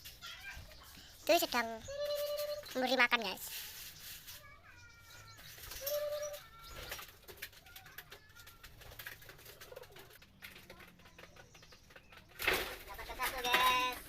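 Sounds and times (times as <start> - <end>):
pigeons cooing: 5.6 - 7.0, 8.8 - 10.2.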